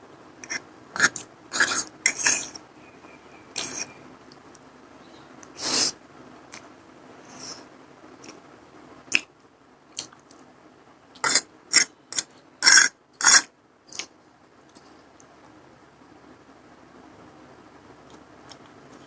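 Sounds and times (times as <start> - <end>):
mouth clicks eating noodles: 0.4 - 2.6, 3.5 - 4.4, 9.1 - 9.3.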